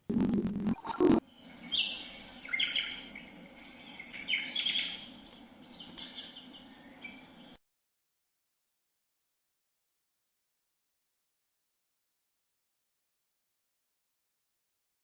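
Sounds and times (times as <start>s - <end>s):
faint steady hum: 0.0s - 7.6s
recorded birdsong through speaker: 0.9s - 7.6s.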